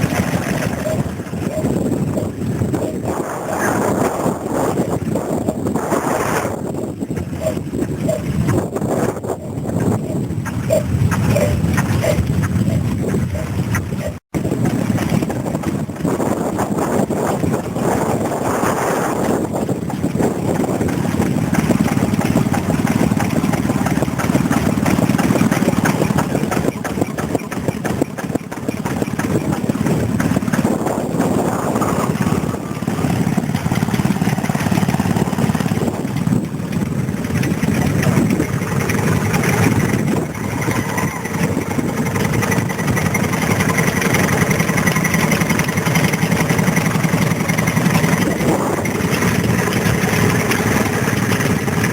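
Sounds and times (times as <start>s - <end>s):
stationary engine running: 14.4s - 51.9s.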